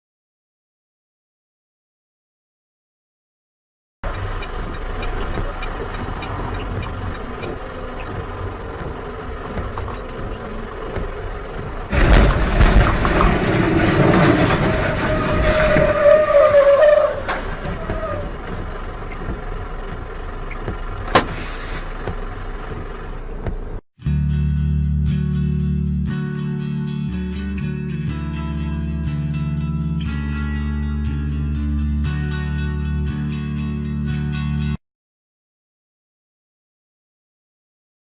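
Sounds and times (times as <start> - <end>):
car and road noise: 4.0 - 23.8.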